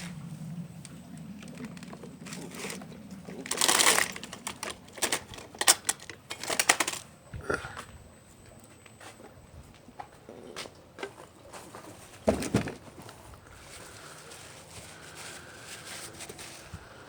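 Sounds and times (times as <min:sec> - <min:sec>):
low motor hum: 0:00.0 - 0:11.0
clicks and clatters: 0:00.8 - 0:07.0.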